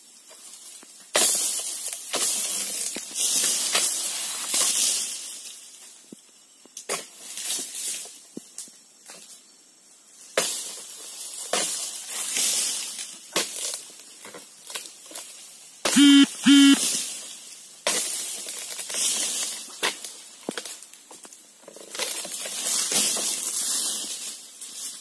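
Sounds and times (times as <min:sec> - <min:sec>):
palm fronds rustling and swishing: 0:00.0 - 0:09.5, 0:10.1 - 0:15.8, 0:16.8 - 0:25.0
short horn beeps: 0:16.0 - 0:16.8.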